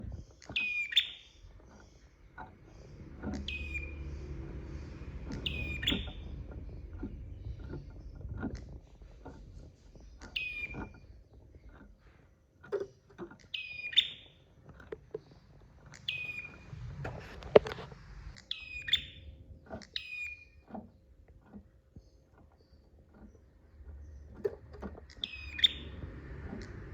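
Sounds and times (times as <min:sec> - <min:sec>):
bird calling shrill phrases: 0:00.3 - 0:08.1, 0:10.0 - 0:11.2, 0:13.4 - 0:14.6, 0:15.8 - 0:16.7, 0:18.4 - 0:20.6, 0:25.1 - 0:26.8.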